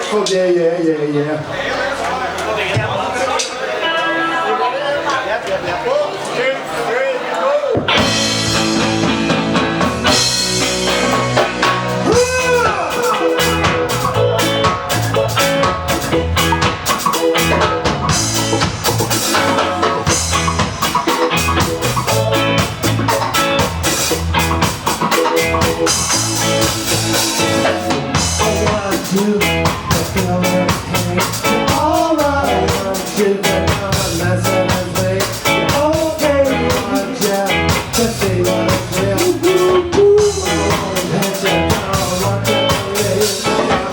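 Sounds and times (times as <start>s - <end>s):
live ska band playing: 7.6s - 43.9s
person singing melody: 26.9s - 43.9s.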